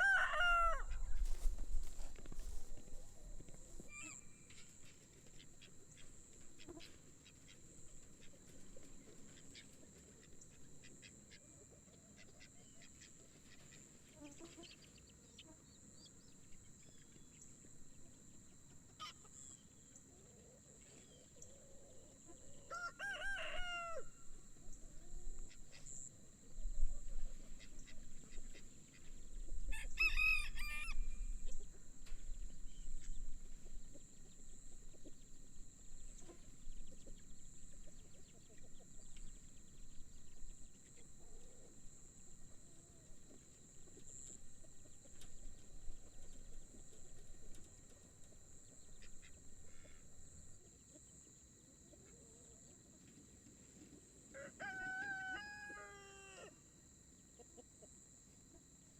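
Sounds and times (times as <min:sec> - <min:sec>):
rooster crowing: 0:00.0 - 0:02.6, 0:22.6 - 0:24.3, 0:29.7 - 0:31.5, 0:54.3 - 0:56.6.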